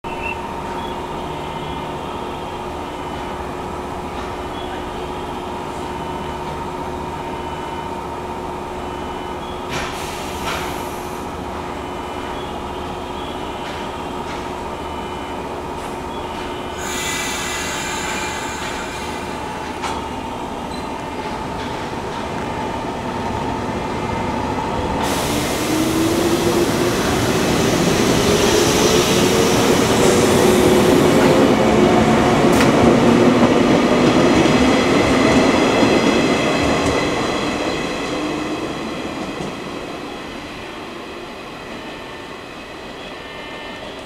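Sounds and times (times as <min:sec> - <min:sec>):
air hiss: 0:16.8 - 0:19.4.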